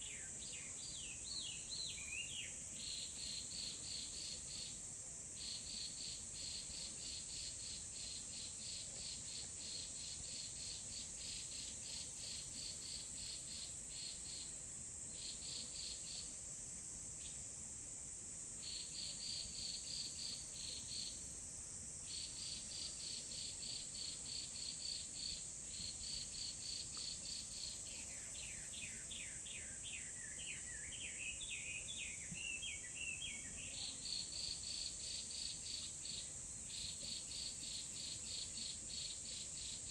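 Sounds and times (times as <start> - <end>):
songbird singing: 0.0 - 4.8, 26.1 - 39.9
insects chirping: 0.0 - 39.9
steady high-pitched hiss: 0.0 - 39.9.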